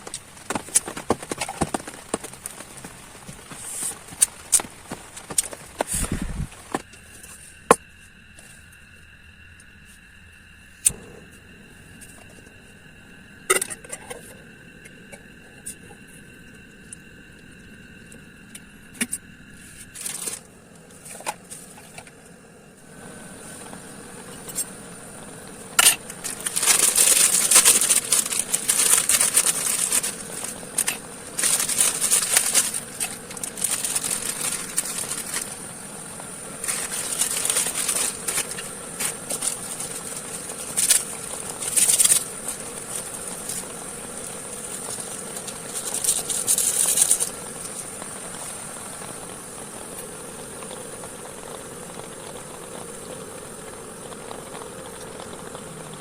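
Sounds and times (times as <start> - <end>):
tarp crinkling and rustling: 0.0 - 6.8, 26.2 - 35.6, 36.6 - 43.8, 44.5 - 47.8
rain hissing: 0.0 - 6.9, 14.4 - 56.0.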